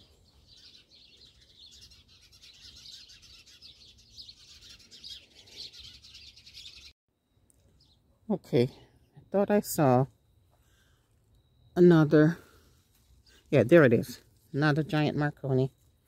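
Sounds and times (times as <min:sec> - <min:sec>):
faint small birds chirping: 0:00.0 - 0:09.6, 0:10.2 - 0:16.0.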